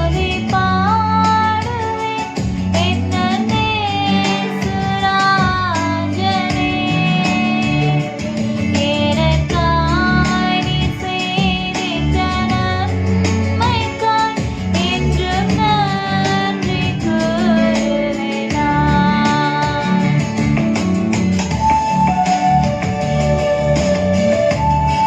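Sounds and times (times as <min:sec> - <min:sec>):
instrumental accompaniment with bass: 0:00.0 - 0:25.0
high voice singing: 0:02.2 - 0:13.0.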